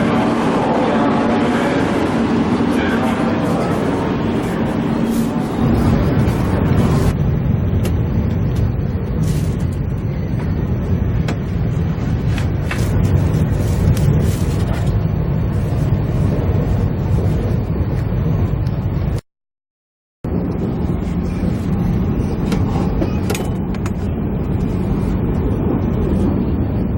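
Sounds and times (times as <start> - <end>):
train rumbling inside carriage: 0.0 - 19.2, 20.3 - 26.9.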